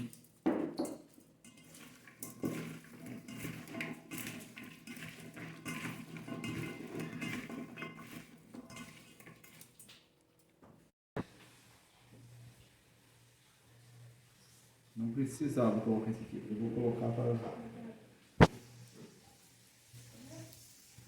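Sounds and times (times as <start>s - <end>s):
cutlery and cookware clinking: 0.0s - 10.6s.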